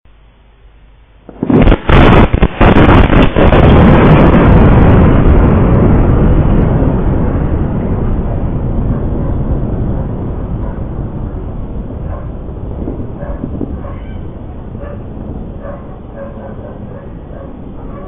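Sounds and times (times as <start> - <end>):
explosion blast: 1.2 - 15.6
rolling rumble: 1.2 - 18.0
sharp cracks: 1.3 - 5.9.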